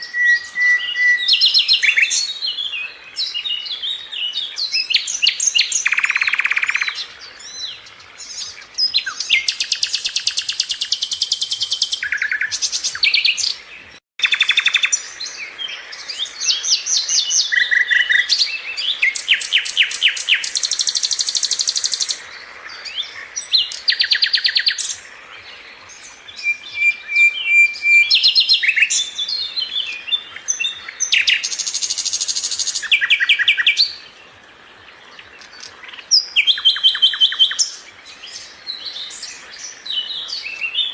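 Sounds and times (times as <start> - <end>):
songbird trilling: 0.0 - 13.6, 14.2 - 25.2, 25.9 - 34.1, 35.2 - 40.9.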